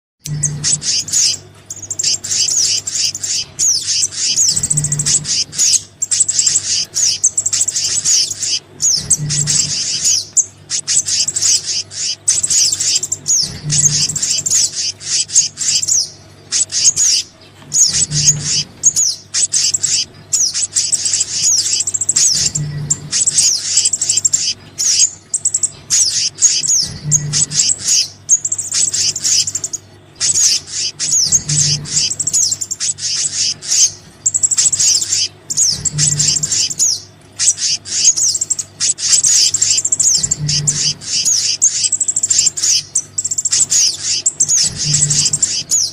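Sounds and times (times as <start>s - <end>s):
low hum: 0.2s - 45.9s
small birds chirping: 0.2s - 45.9s.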